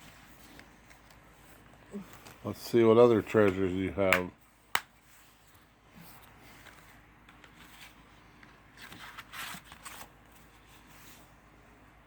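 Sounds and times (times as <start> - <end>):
plastic disc packaging handled: 0.0 - 11.3
paper rustling: 5.0 - 11.3.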